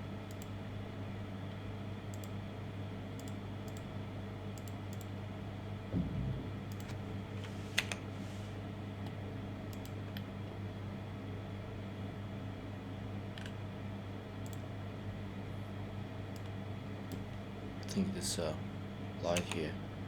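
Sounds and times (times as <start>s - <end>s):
low electrical hum: 0.0s - 20.0s
keyboard and mouse clicks: 6.0s - 7.0s
low thump: 6.0s - 7.4s.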